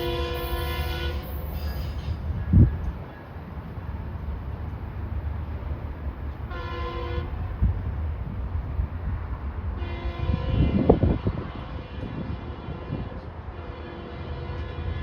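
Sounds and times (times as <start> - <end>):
train air horn blasts: 0.0 - 2.2, 6.5 - 7.4, 9.8 - 15.0
low rumble of passing train: 0.0 - 15.0.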